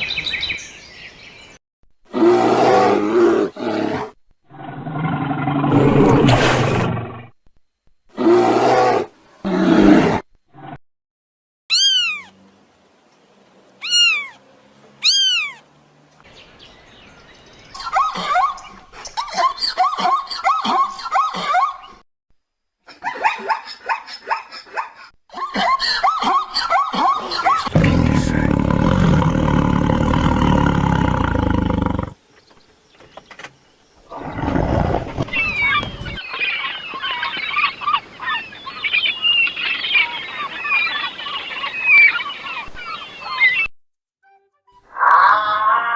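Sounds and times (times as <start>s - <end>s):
low rumbling animal growl: 2.1s - 7.4s, 27.7s - 32.2s, 34.0s - 35.3s
cat meowing: 11.7s - 12.3s, 13.8s - 14.4s, 15.0s - 15.6s
high-pitched bird calls: 11.7s - 12.3s, 13.8s - 14.4s, 15.0s - 15.6s, 35.2s - 43.7s.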